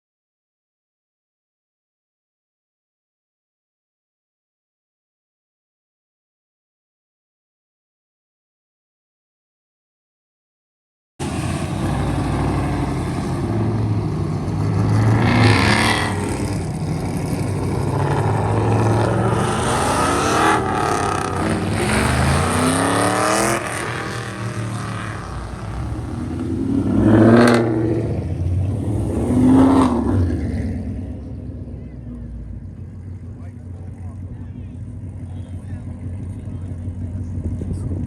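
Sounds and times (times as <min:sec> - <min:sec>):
car engines revving: 0:11.2 - 0:38.0.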